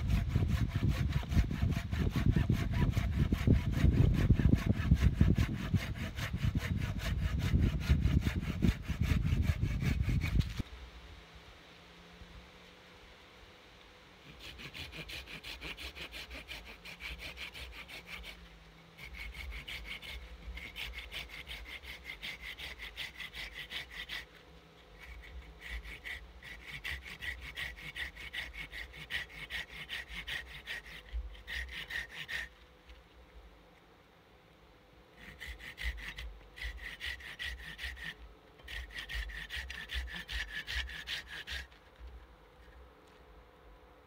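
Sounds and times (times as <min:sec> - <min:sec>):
hand saw cutting wood: 0:00.0 - 0:10.6, 0:14.2 - 0:33.1, 0:35.1 - 0:42.8.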